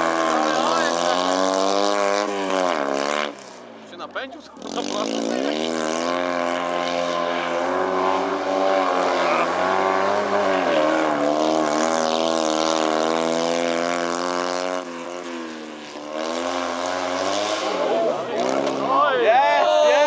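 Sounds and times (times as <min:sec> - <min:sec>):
rally car engine at high revs: 0:00.0 - 0:19.6.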